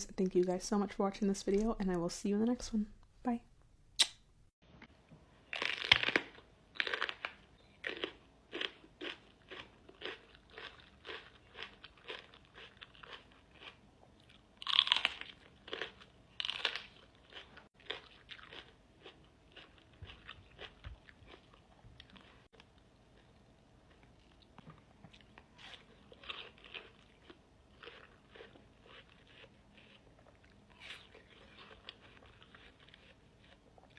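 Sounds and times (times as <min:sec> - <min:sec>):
crunchy fruit bites: 0:05.5 - 0:22.7
chewing crisp fruit: 0:05.5 - 0:33.9.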